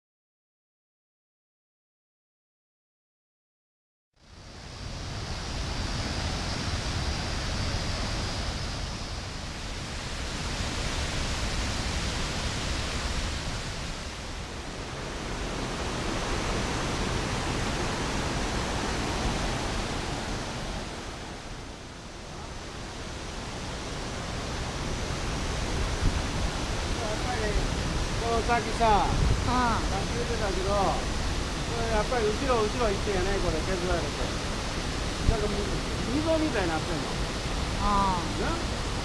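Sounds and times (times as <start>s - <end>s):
waterfall rushing: 4.6s - 39.0s.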